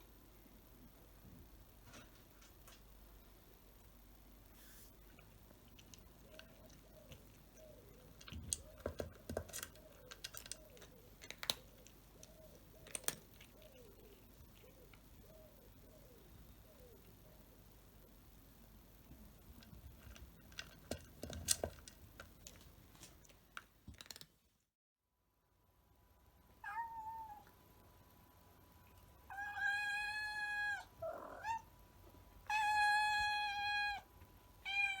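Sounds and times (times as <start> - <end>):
cat crunching dry food: 5.1 - 15.0, 19.4 - 24.4
cat meowing: 26.6 - 27.5, 32.5 - 35.0.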